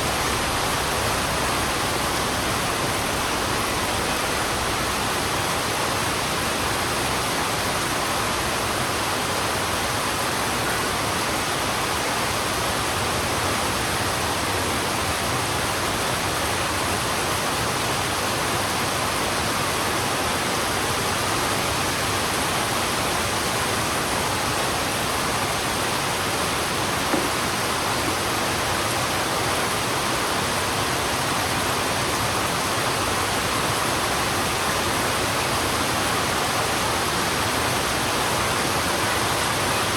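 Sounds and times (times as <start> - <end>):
heavy rain on a road: 0.0 - 39.9
faint knock: 27.1 - 27.5.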